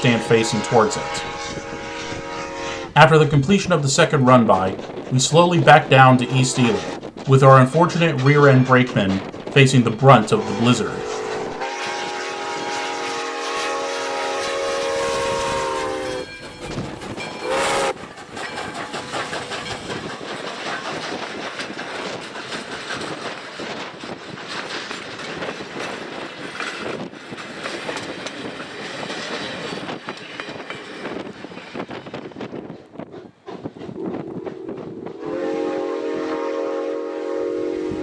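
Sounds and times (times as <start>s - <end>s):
steam locomotive whistle: 0.0s - 18.0s, 34.0s - 38.0s
train rumbling slowly: 0.0s - 38.0s.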